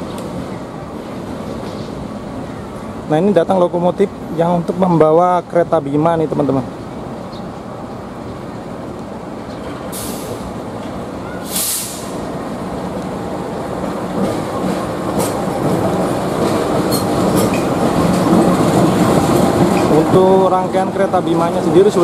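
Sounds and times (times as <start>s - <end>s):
locomotive engine rumble: 0.0s - 22.0s
short air hisses: 9.9s - 10.5s, 11.4s - 12.3s
wheels clicking over rail joints: 12.2s - 22.0s.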